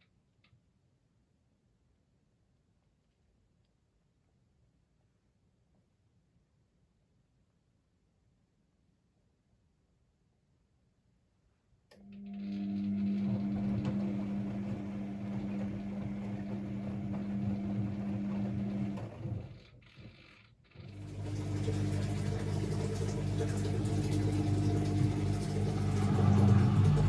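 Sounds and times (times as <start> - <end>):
washing machine motor hum: 12.0 - 19.9, 20.8 - 27.0.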